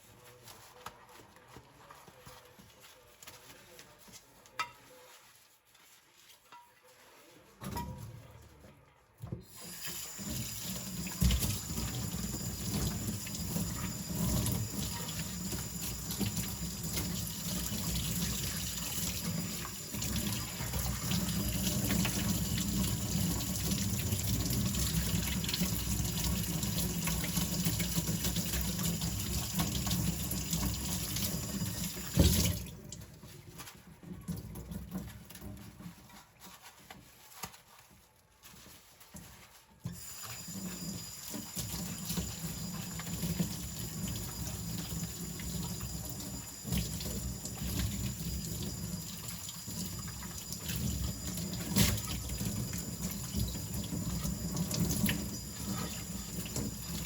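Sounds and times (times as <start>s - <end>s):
tap water splashing into sink: 9.4s - 33.1s.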